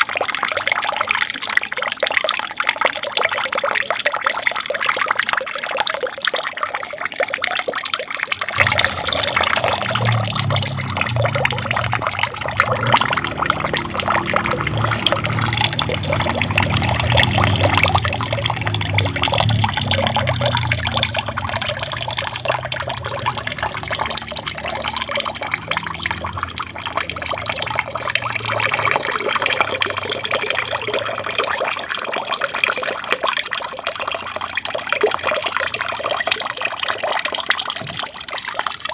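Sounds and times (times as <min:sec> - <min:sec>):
aquarium waterfall trickling: 0:00.0 - 0:38.9
deep rumble: 0:08.6 - 0:31.3.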